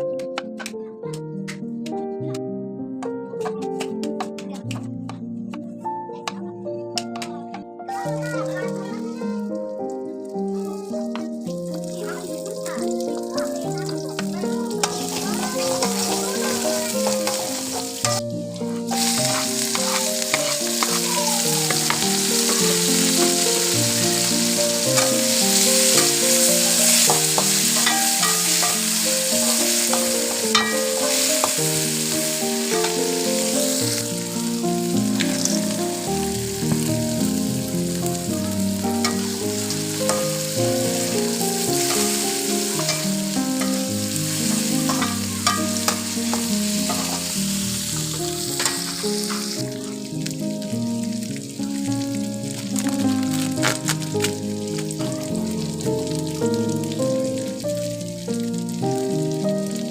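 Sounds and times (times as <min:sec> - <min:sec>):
soft melodic background music: 0:00.0 - 0:59.9
food sizzling in a frying pan: 0:07.9 - 0:59.9
spatula clicking: 0:19.0 - 0:21.0, 0:26.9 - 0:31.6, 0:48.6 - 0:49.5.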